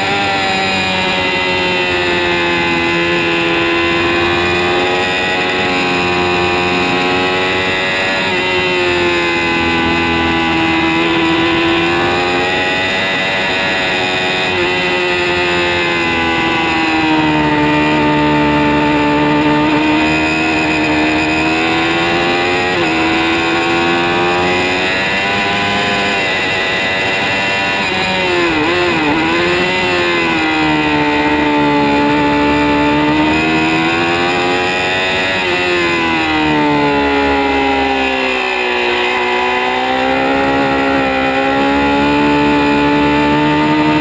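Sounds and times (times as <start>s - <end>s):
motorcycle engine revving high: 0.0s - 44.0s.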